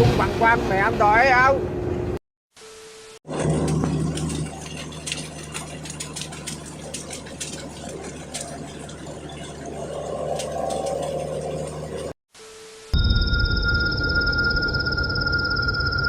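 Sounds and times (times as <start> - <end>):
engine humming: 3.3 - 12.2.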